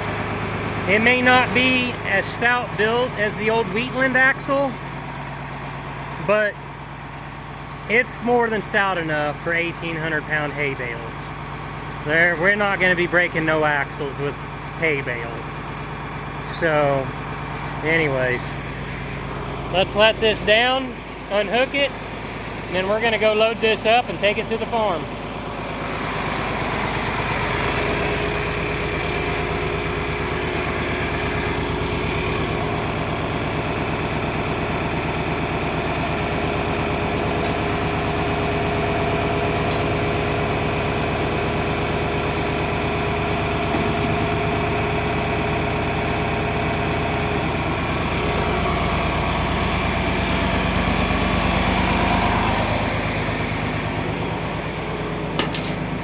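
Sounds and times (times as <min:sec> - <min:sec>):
tractor engine idling: 0:00.0 - 0:56.0.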